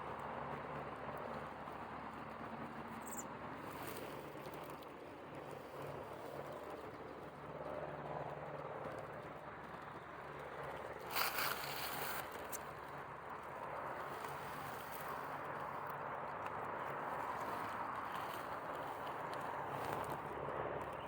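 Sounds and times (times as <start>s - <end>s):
steady low hum: 0.0s - 21.0s
rustling of berries being picked: 11.0s - 12.9s.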